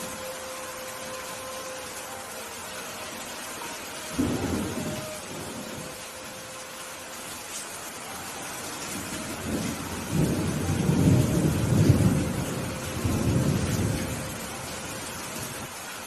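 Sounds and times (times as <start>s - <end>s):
steady rain: 0.0s - 16.0s
thunder rumbling: 4.1s - 6.1s, 8.8s - 15.7s.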